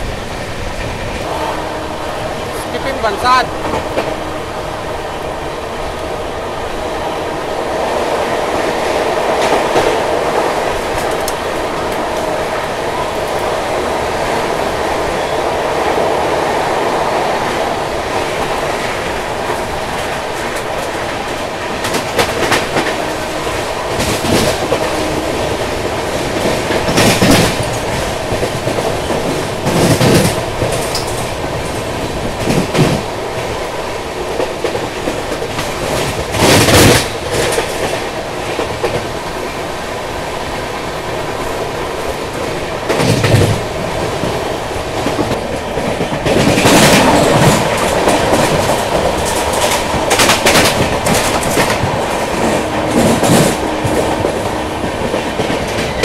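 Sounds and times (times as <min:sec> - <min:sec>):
train rumble: 0:00.0 - 0:56.0
train wheels clicking over rail joints: 0:15.8 - 0:39.8, 0:41.3 - 0:56.0.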